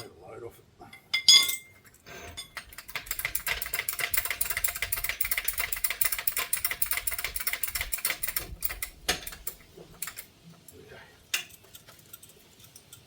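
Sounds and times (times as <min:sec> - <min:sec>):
ratchet wrench clicking: 0:02.6 - 0:10.3.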